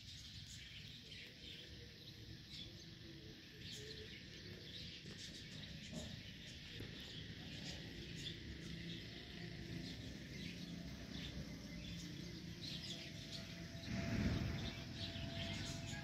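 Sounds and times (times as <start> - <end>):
birds chirping: 0.0 - 16.0
low background rumble: 8.9 - 16.0.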